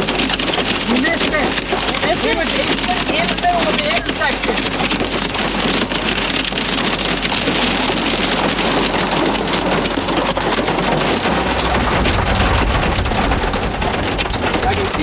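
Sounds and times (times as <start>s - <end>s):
heavy rain on vehicle: 0.0s - 15.0s
low rumble: 11.0s - 15.0s.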